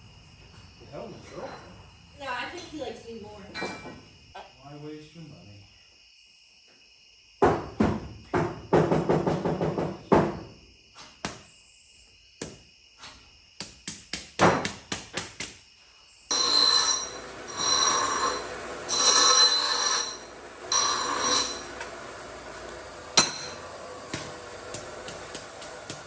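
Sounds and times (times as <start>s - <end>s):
power tool whining: 16.3s - 26.0s.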